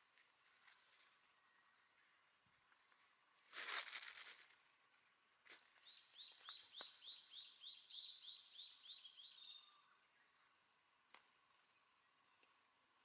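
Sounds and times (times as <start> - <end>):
songbird singing: 5.6 - 10.5.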